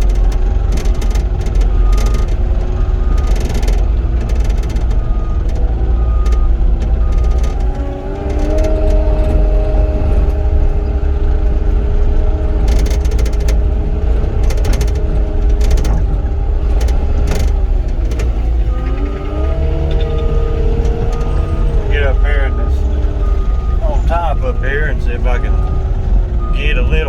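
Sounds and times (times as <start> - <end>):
diesel engine revving: 0.0 - 27.0
reversing alarm beeping: 5.0 - 11.3, 18.6 - 27.0
metallic clanks and rattles: 10.2 - 21.6.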